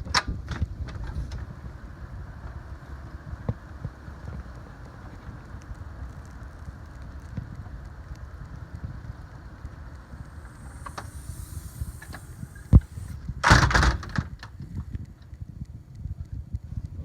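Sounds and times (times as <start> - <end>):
wind buffeting microphone: 0.3 - 13.7.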